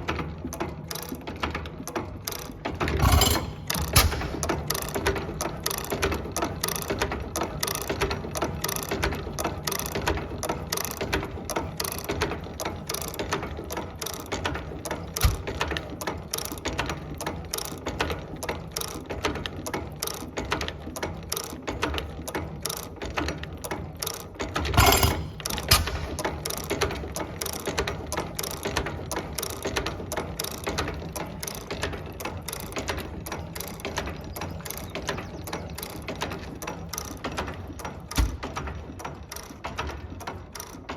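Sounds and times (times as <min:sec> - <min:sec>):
portable engine clattering: 0:02.8 - 0:06.0, 0:24.5 - 0:28.8.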